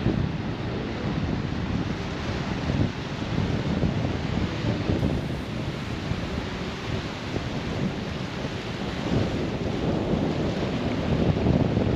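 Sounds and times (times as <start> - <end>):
surf breaking on a beach: 0.0 - 11.9
wind buffeting the microphone: 0.0 - 11.9.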